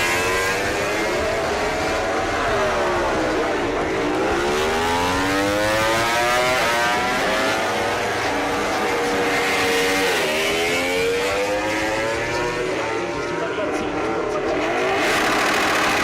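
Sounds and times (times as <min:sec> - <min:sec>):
racing motorcycle engine accelerating: 0:00.0 - 0:16.0.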